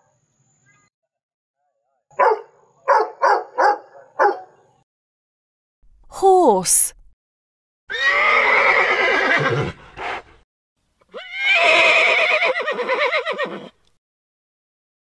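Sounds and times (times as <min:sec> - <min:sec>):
horse whinnying: 0:07.9 - 0:10.2, 0:11.1 - 0:13.8.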